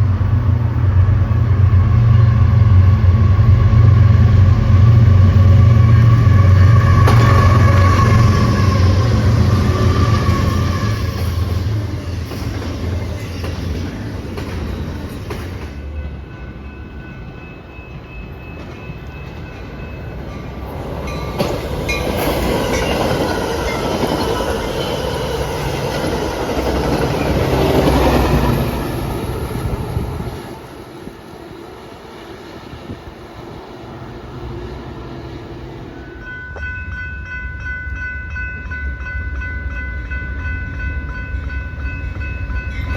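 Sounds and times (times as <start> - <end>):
train rumbling on tracks: 0.0 - 42.9.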